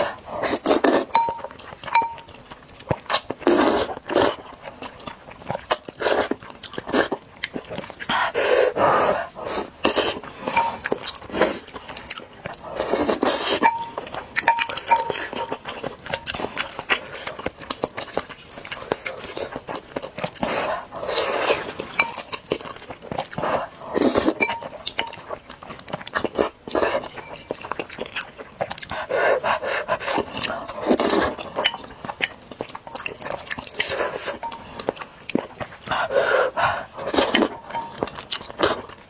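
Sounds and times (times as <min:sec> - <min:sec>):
noodles slurped loudly: 0:00.0 - 0:01.1
chewing: 0:00.0 - 0:39.0
hissing panting breaths: 0:08.0 - 0:11.8, 0:28.8 - 0:31.4, 0:35.8 - 0:37.4.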